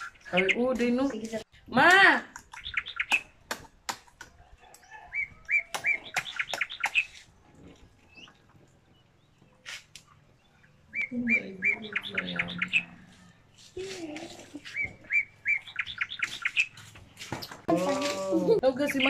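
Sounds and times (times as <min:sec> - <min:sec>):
small bird chirping: 0:02.5 - 0:03.4, 0:04.7 - 0:17.0.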